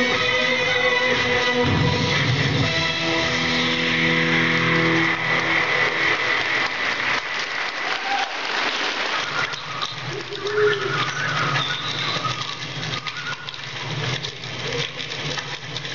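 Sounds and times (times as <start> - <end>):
audience applause: 0.0 - 15.9.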